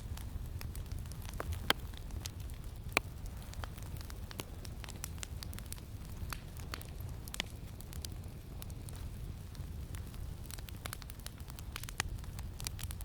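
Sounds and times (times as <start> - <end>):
campfire crackling and popping: 0.0 - 13.0
low wind rumble: 0.0 - 13.0.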